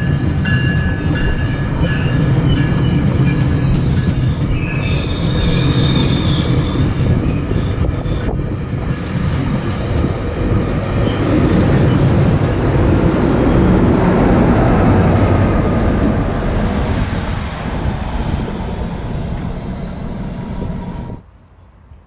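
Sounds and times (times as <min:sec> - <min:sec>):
high-pitched wheel squeal: 0:00.0 - 0:11.2, 0:11.9 - 0:14.5
train coaches rumbling over rails: 0:00.0 - 0:21.3
diesel locomotive passing: 0:00.0 - 0:22.0.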